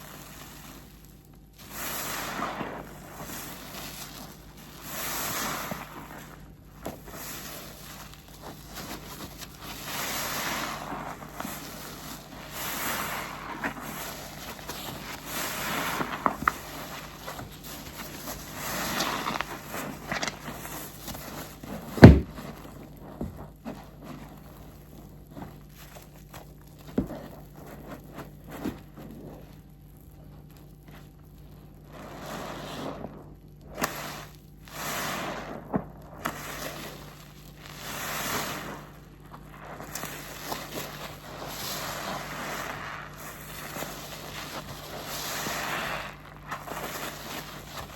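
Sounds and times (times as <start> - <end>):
wet sponge squelching: 0.0 - 47.9
sharp knock: 22.0 - 22.3.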